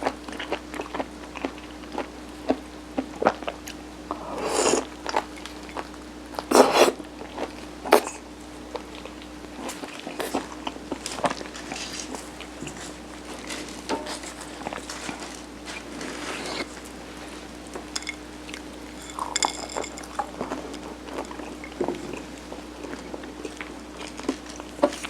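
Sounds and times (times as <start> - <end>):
faint steady hum: 0.0 - 25.0
soft chewing and mouth clicks: 4.6 - 12.9
bites or rustles: 9.7 - 16.7.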